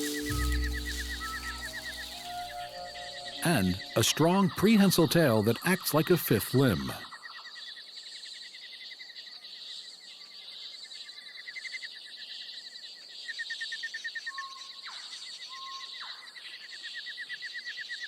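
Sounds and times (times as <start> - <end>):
insects high buzz: 0.0 - 3.9
insects pulsing trills: 0.0 - 4.1
short whistled calls: 0.0 - 4.3.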